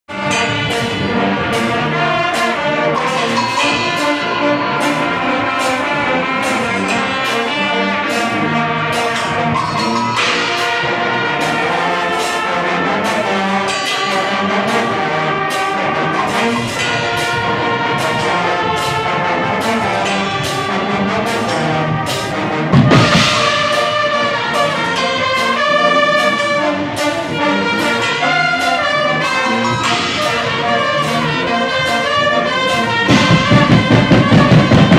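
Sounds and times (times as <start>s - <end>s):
blaring brass: 0.0s - 34.9s
steady drum beat: 0.0s - 34.9s.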